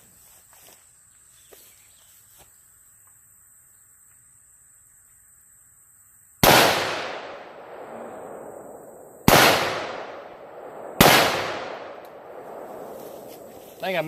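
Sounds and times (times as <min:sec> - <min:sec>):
rifle shots with echo: 0:06.4 - 0:13.5.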